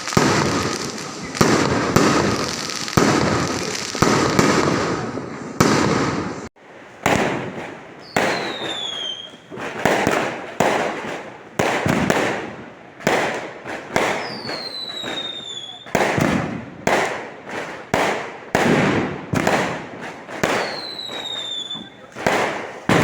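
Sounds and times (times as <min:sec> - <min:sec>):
fireworks bangs: 0:00.0 - 0:23.0
descending firework whistle: 0:08.0 - 0:09.4, 0:14.0 - 0:16.0, 0:20.5 - 0:22.0.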